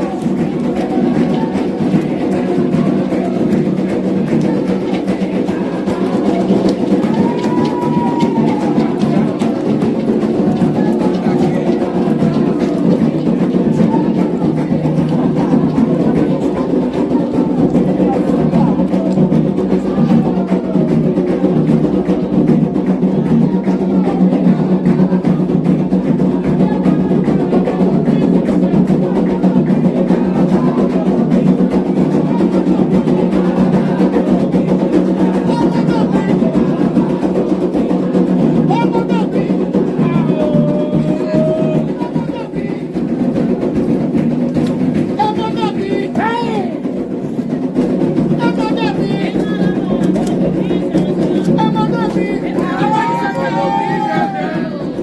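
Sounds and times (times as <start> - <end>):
hand drums beating fast rhythm: 0.0 - 55.0
voices singing: 0.0 - 55.0.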